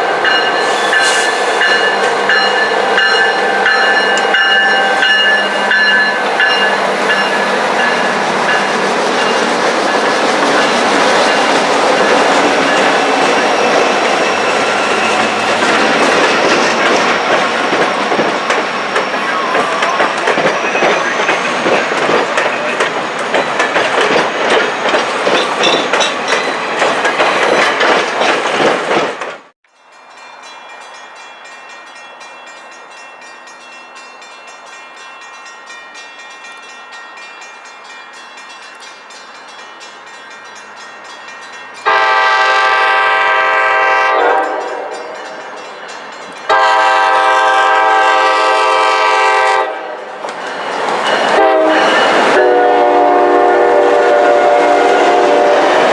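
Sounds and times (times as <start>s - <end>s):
train horn blasts: 0.0s - 6.2s, 41.8s - 45.3s, 46.5s - 50.2s, 51.3s - 55.9s
train passing with rail clatter: 0.0s - 55.9s.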